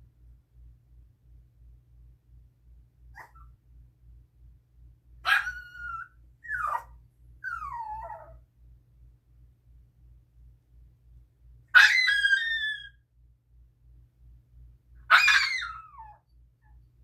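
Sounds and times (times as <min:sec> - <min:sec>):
dog screaming high-pitched: 0:05.3 - 0:06.8, 0:11.8 - 0:13.0, 0:15.1 - 0:16.2.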